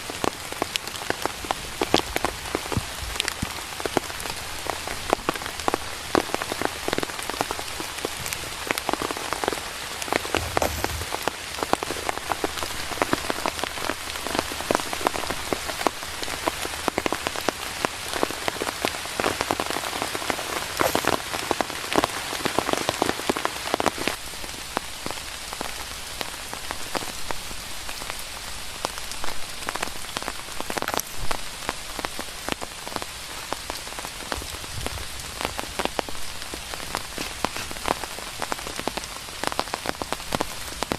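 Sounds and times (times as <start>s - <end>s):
raindrops striking close by: 0.0s - 40.9s
steady rain: 0.0s - 40.9s.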